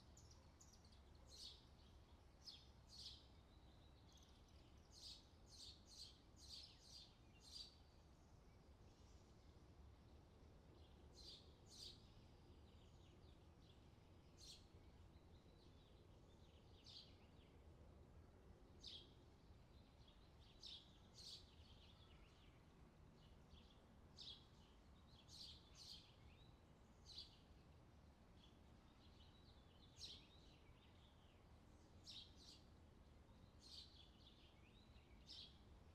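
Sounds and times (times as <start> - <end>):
soft background hiss: 0.0 - 35.9.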